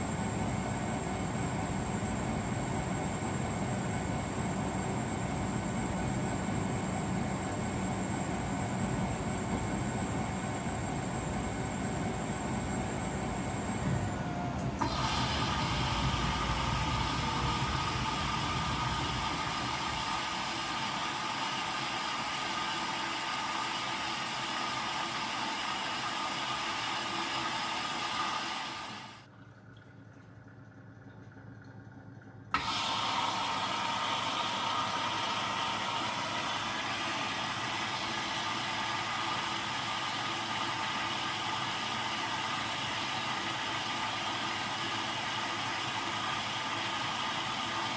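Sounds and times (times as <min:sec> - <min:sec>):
washing machine drum turning: 0:12.8 - 0:21.8.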